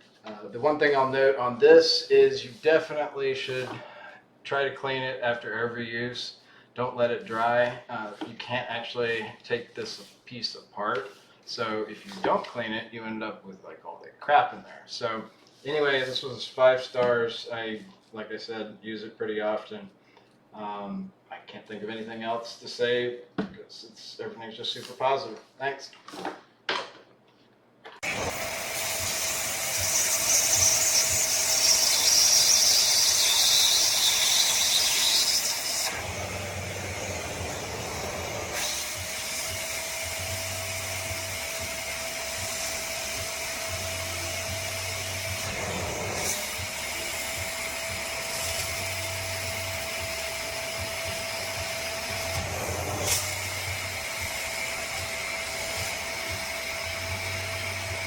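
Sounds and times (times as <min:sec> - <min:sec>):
upholstery cleaner motor whine: 0:28.0 - 0:58.0.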